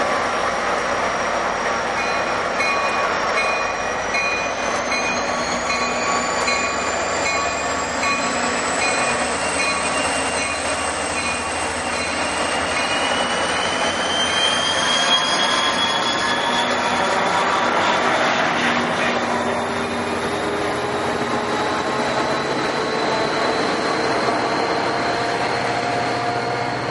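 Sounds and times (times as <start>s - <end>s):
train running on rails: 0.0s - 26.9s
bell-like tone: 2.0s - 13.3s.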